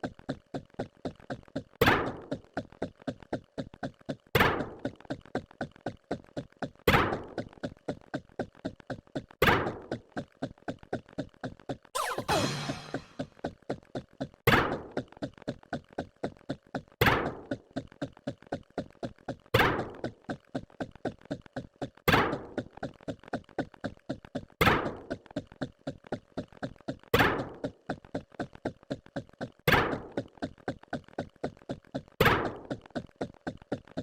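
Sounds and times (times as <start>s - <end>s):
loud thunk-like hits: 12.0s - 13.2s.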